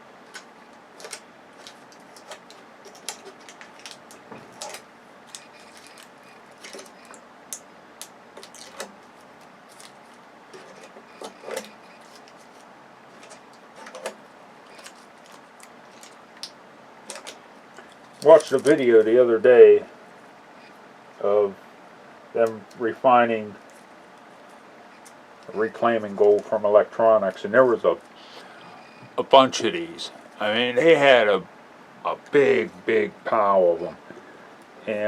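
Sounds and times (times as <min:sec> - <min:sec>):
small parts clicking and clattering: 0:00.3 - 0:07.6.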